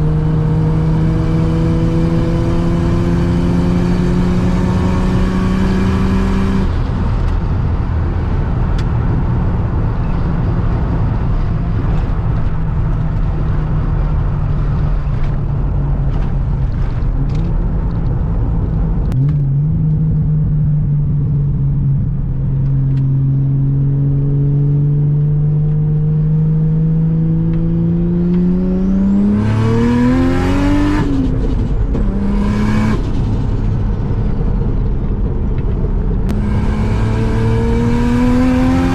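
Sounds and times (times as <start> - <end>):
turbocharged car engine revving: 0.0 - 7.7, 24.2 - 38.9.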